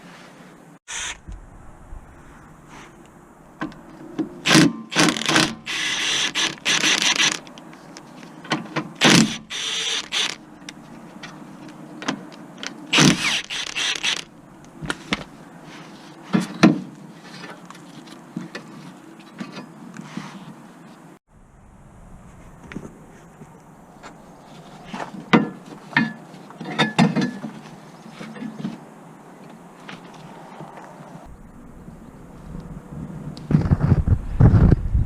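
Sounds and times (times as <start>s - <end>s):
rasping bursts: 0.9s - 1.4s, 4.4s - 7.5s, 9.0s - 10.4s, 12.9s - 14.3s
hand tools clicking and knocking: 25.0s - 27.6s.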